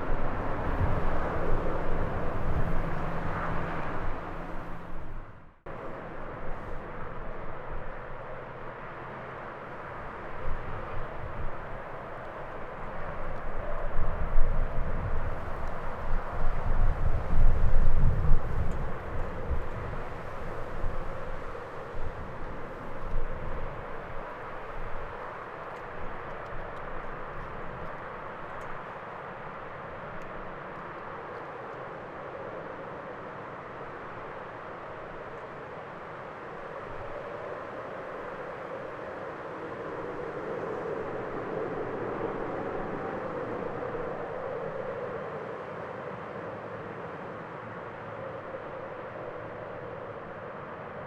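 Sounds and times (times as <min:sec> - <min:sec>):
wind on microphone: 0:00.0 - 0:06.9, 0:10.3 - 0:31.2
jet engine noise: 0:00.0 - 0:51.0.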